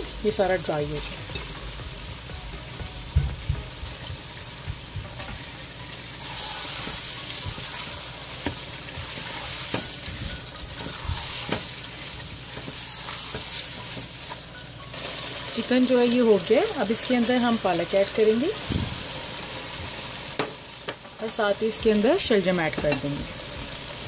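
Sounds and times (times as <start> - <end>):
chicken sizzling in hot oil: 0.0 - 24.0
spatula scraping and knocking pot: 6.2 - 11.8.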